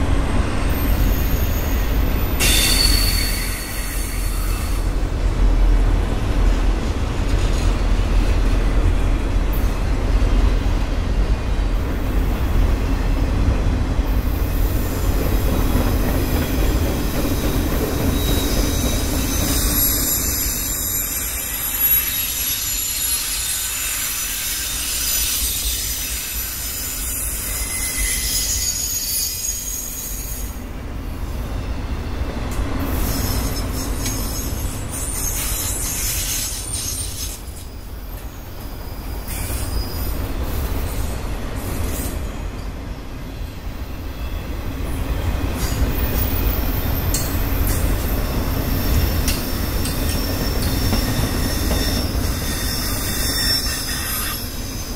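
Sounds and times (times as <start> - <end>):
steel wheels rumbling on rail: 0.0 - 54.9
high-pitched wheel squeal: 0.8 - 4.8, 17.3 - 30.5, 45.6 - 54.9.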